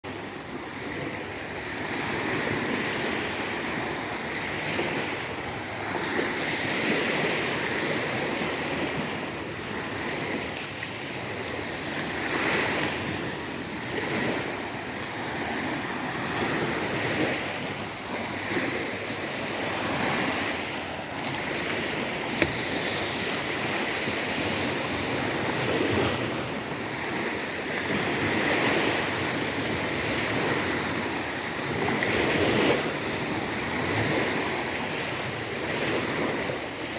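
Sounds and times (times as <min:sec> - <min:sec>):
sea waves washing onto shore: 0:00.1 - 0:36.9.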